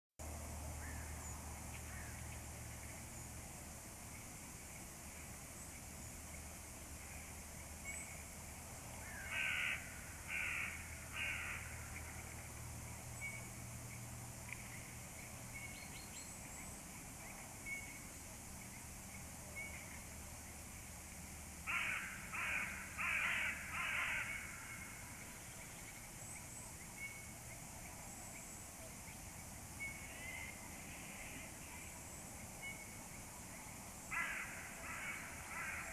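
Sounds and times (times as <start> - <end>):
crows cawing: 9.0 - 11.8, 21.6 - 25.0, 34.1 - 35.9.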